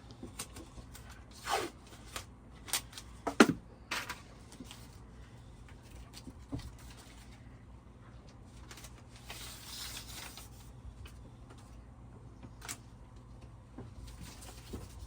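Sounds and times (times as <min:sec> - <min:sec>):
low steady hum: 0:00.0 - 0:15.0
scraping rustle against wall: 0:08.6 - 0:10.7.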